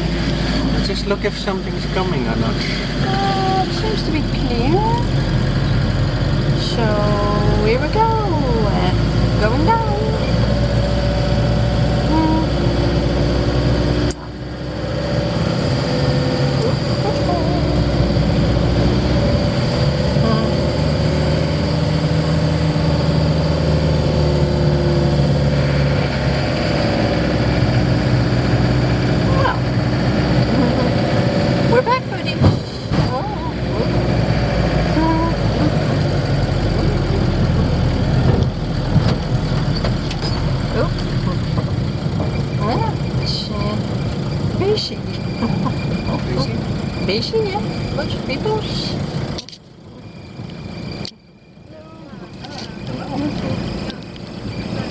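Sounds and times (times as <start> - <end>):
engine and road rumble: 0.0 - 54.9
faint steady whine: 36.2 - 54.9
click: 50.5 - 51.2.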